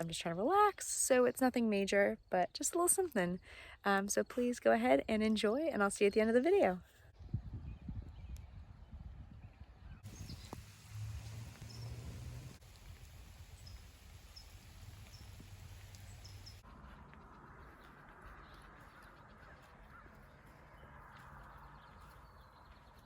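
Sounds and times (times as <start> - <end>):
faint outdoor ambience: 9.6 - 23.0
steady hiss: 10.0 - 16.6.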